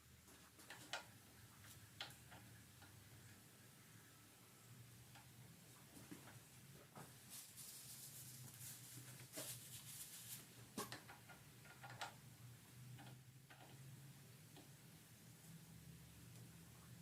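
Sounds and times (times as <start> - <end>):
low steady hum: 0.0 - 17.0
faint clicks and taps: 5.1 - 7.2, 10.8 - 12.2, 13.0 - 13.9.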